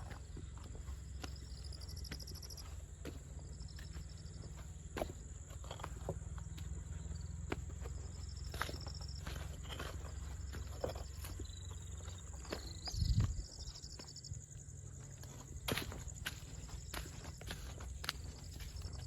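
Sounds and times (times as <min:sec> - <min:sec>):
footsteps walking: 0:00.0 - 0:19.0.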